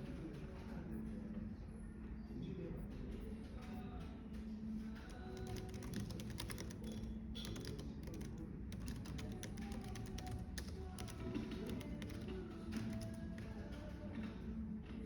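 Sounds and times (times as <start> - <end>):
cafe background noise: 0.0 - 15.0
soft music: 0.0 - 15.0
keyboard keystroke clicks: 5.0 - 13.9.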